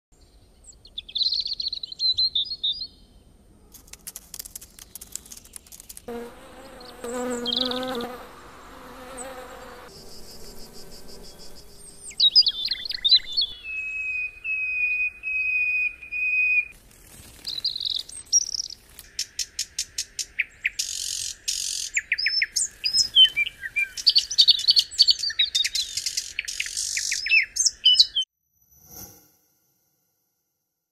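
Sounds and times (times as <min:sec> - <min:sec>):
insects buzzing and trilling: 0:03.8 - 0:13.6
birds chirping and whistling: 0:09.2 - 0:16.7, 0:17.4 - 0:28.2.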